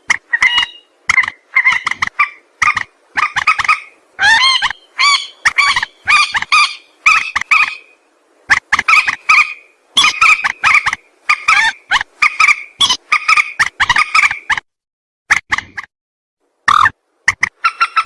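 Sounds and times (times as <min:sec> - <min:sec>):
rail bird calling harsh notes: 0:00.1 - 0:14.5.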